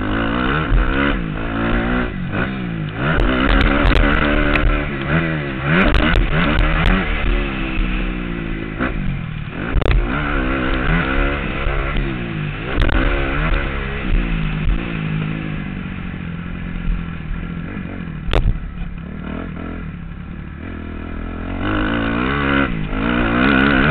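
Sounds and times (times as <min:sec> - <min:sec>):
dirt bike engine revving: 0:00.0 - 0:23.9
sharp clacks and knocks: 0:02.9 - 0:05.2, 0:09.7 - 0:11.0, 0:18.3 - 0:19.1.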